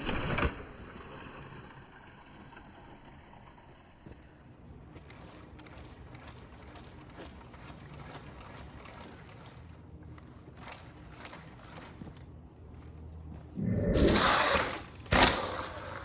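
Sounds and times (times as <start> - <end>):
electric dirt bike hum: 10.6 - 16.0.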